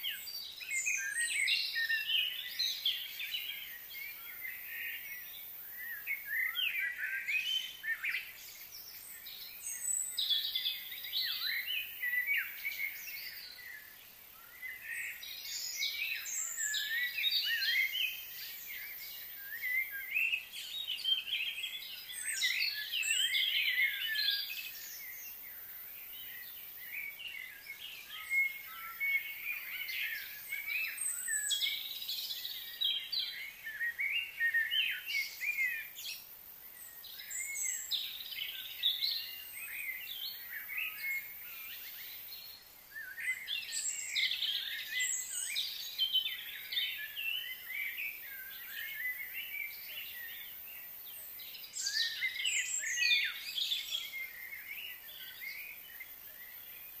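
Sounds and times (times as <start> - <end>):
birds chirping and calling: 14.5 - 57.0.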